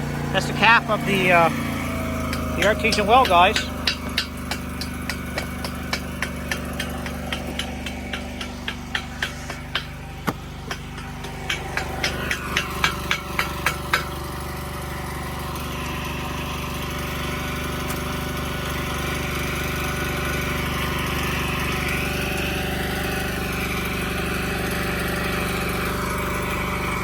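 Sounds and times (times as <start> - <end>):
welder generator engine running: 0.0 - 27.0
sharp metallic taps: 0.4 - 14.3.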